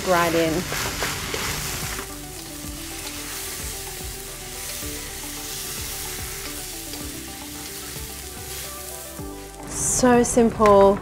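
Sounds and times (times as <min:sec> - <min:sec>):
fried rice sizzling in a wok: 0:00.0 - 0:09.6
utensil clicking against wok: 0:06.4 - 0:07.2.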